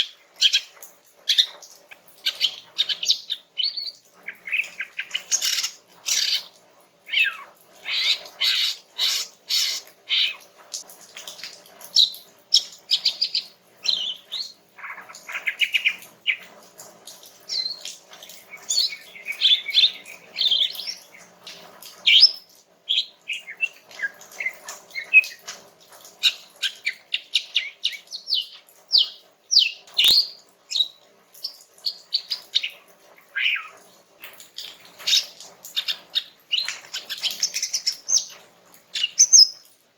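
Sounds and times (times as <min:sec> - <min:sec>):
bird singing chirps and trills: 0:17.5 - 0:25.4, 0:39.0 - 0:39.7.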